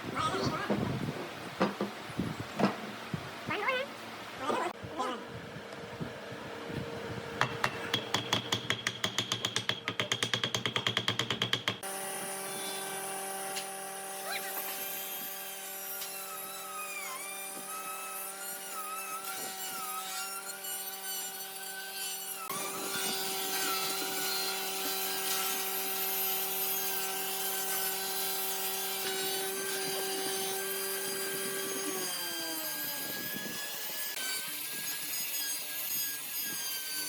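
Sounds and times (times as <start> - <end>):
power tool cutting wood: 11.8 - 37.0.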